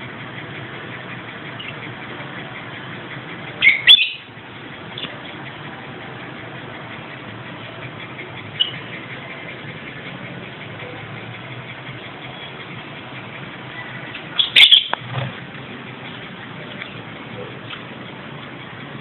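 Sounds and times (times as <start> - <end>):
lovebird chirps: 14.3 - 15.0.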